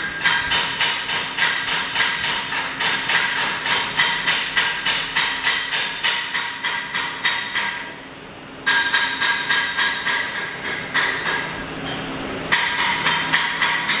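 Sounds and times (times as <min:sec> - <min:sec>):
hammer tapping on metal: 0:00.0 - 0:08.0, 0:08.6 - 0:14.0.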